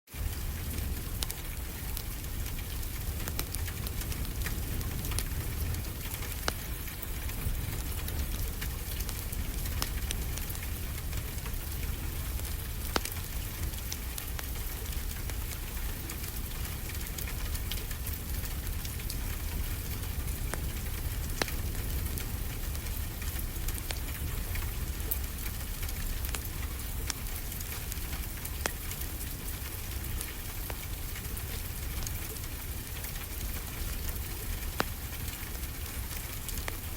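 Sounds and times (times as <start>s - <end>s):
wood fire crackling: 0.1s - 36.9s.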